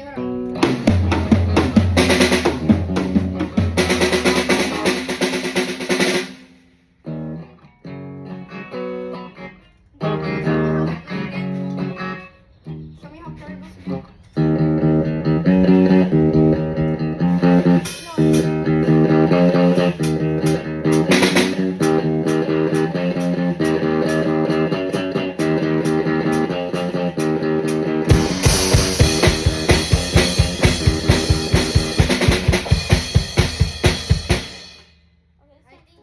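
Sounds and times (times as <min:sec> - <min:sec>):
electric guitar chord riff: 0:00.0 - 0:05.3, 0:14.4 - 0:34.3
rock drum kit: 0:00.4 - 0:06.6, 0:14.4 - 0:34.9.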